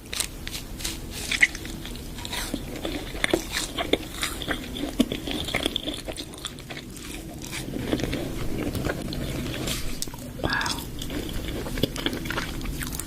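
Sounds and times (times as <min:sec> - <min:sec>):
crunchy chewing of crisp food: 0:00.0 - 0:13.0.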